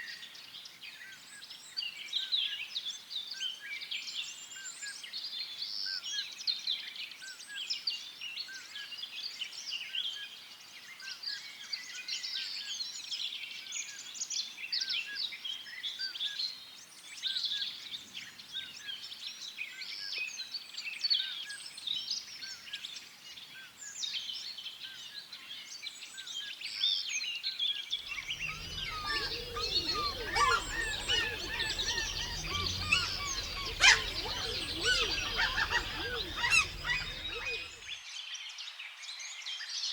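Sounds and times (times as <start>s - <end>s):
honking bird calls: 28.1s - 37.8s
songbirds chirping: 28.1s - 37.9s.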